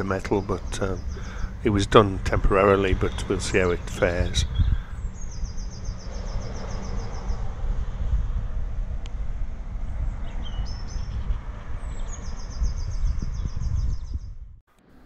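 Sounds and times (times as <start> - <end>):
bird chirps: 0.0 - 1.9, 2.9 - 7.5, 10.2 - 14.3
steady low rumble: 0.0 - 14.6
small bird trilling: 4.4 - 7.2.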